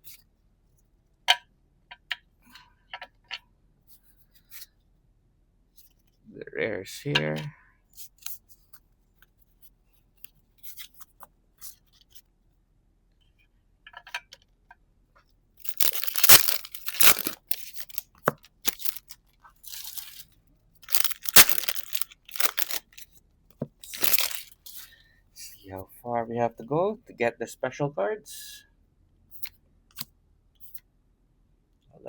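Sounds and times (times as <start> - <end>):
foil packs ripping open: 15.7 - 18.0, 18.7 - 20.2, 20.8 - 23.0, 23.9 - 24.5
cards being handled clicks: 20.9 - 22.8.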